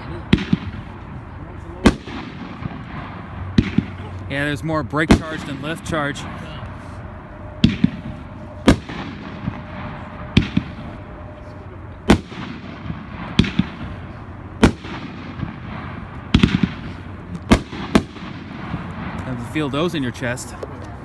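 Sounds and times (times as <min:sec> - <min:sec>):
fireworks bangs with echo: 0:00.0 - 0:07.0, 0:07.6 - 0:11.4, 0:12.0 - 0:19.9.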